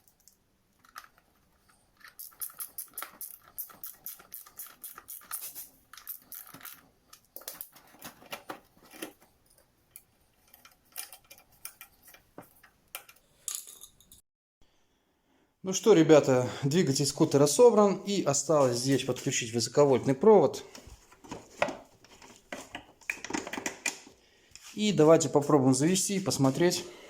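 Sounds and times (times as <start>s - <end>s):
hand tools clicking and tapping: 0.0s - 13.9s.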